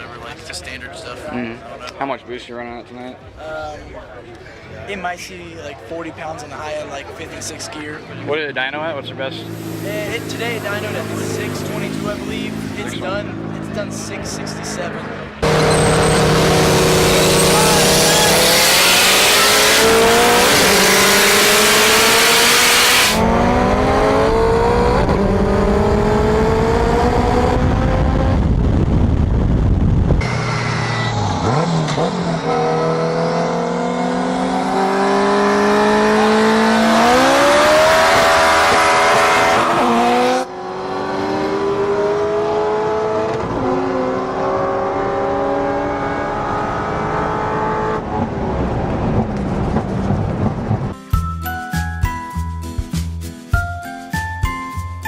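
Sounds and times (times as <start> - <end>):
turbocharged car engine accelerating: 9.1 - 50.9.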